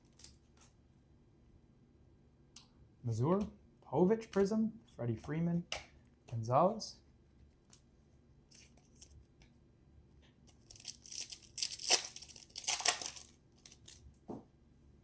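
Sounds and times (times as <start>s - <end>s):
foil pack ripping and crinkling: 10.6s - 14.0s.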